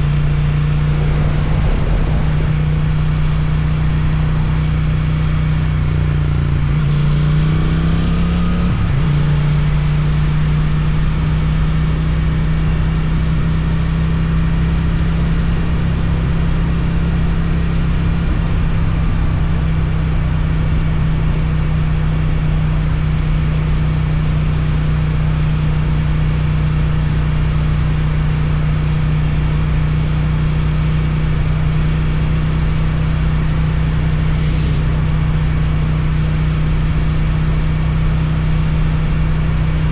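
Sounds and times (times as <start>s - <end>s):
motorcycle engine revving: 0.0s - 3.8s.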